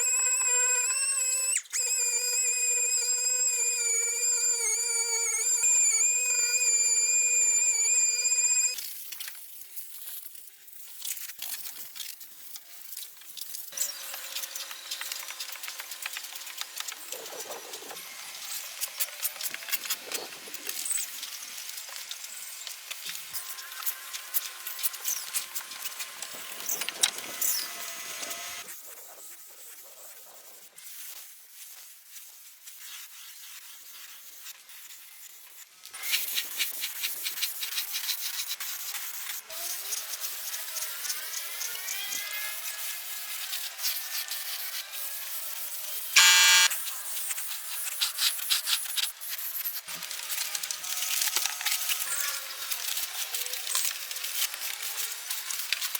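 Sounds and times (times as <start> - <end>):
power tool whine: 0.0 - 8.8, 13.8 - 19.3, 23.4 - 28.7, 46.2 - 46.8.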